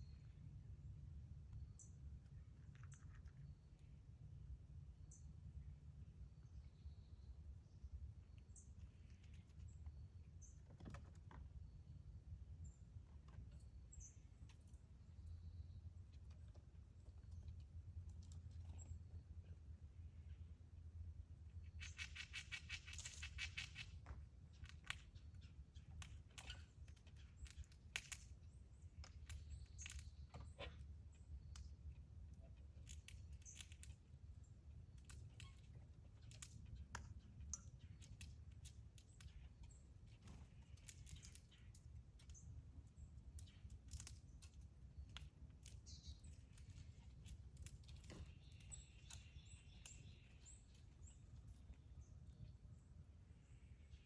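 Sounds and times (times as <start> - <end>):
low steady rumble: 0.0 - 10.6
rapid bird chirps: 21.5 - 27.8, 47.9 - 52.8.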